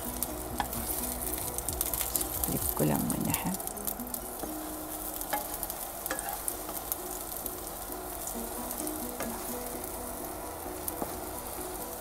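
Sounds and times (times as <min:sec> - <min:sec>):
spatula tapping pan: 0:00.0 - 0:02.6, 0:04.1 - 0:07.4, 0:08.0 - 0:11.6
egg sizzling in a pan: 0:00.0 - 0:12.0
wooden spatula stirring: 0:00.0 - 0:12.0.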